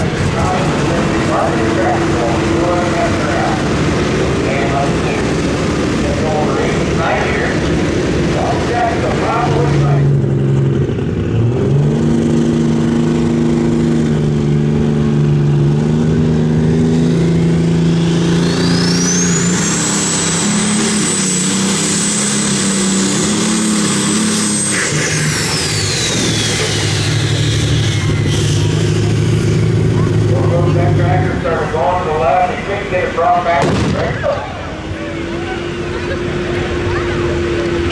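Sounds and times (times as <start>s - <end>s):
high whine: 0.0s - 11.3s
tractor engine under load: 0.0s - 37.9s.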